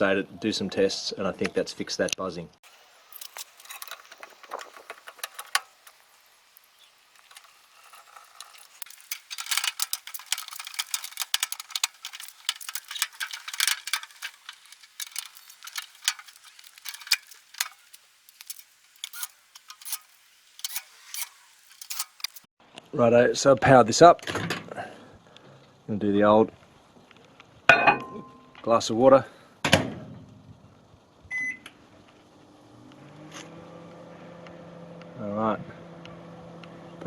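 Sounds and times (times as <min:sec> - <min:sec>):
light metallic rattles of screws: 0:03.1 - 0:06.1, 0:06.8 - 0:22.5
small clicks of parts handled: 0:07.2 - 0:22.5.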